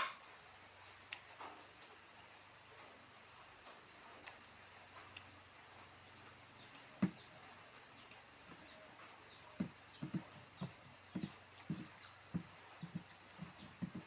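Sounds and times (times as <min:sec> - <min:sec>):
dull knock: 0:09.6 - 0:14.0.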